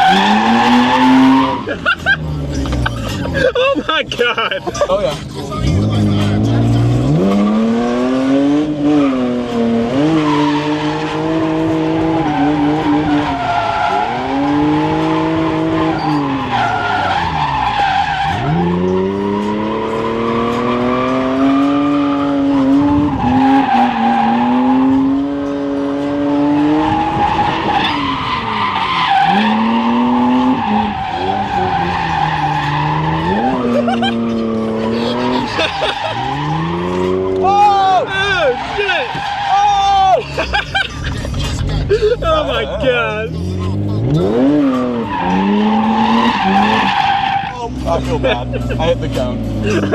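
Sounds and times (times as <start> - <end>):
car engine revving hard: 0.0 - 3.5, 5.4 - 39.4, 42.7 - 49.9
tyres squealing: 0.0 - 3.8, 12.0 - 22.5, 26.8 - 42.8, 43.9 - 48.3.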